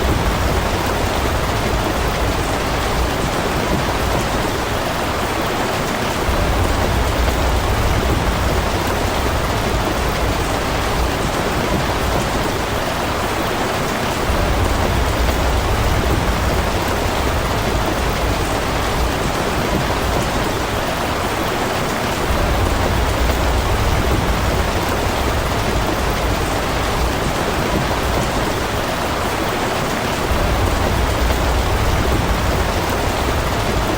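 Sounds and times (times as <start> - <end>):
steady rain falling: 0.0 - 33.9
low rumble: 6.3 - 12.3, 30.3 - 33.9.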